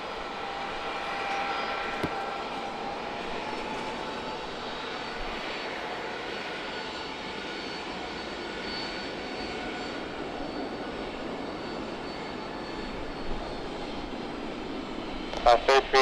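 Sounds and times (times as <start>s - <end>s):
jet engines rushing: 14.7s - 16.0s
faint high whine: 15.3s - 16.0s.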